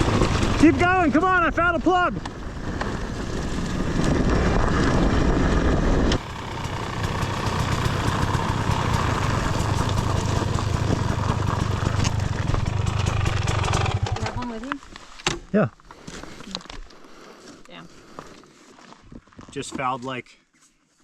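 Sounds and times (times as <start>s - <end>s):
dirt bike idling: 0.0s - 1.5s, 6.2s - 14.7s
rushing noise: 0.0s - 14.2s
dirt bike engine running: 0.0s - 14.7s.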